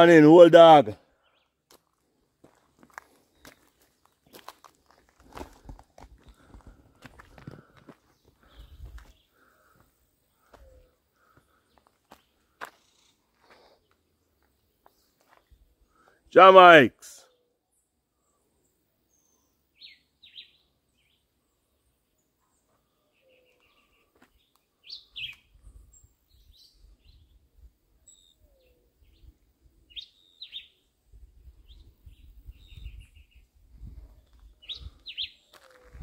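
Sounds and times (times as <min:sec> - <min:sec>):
faint bird chirps and trills: 0:08.0 - 0:15.9, 0:17.3 - 0:36.0.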